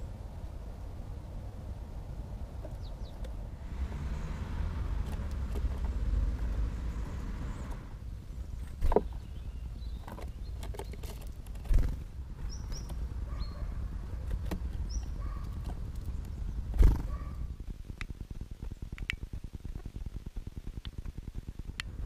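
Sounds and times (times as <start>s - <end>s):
steady low rumble: 0.0s - 10.6s, 11.3s - 22.0s
small birds chirping: 2.1s - 22.0s
sharp clicks: 17.9s - 19.9s.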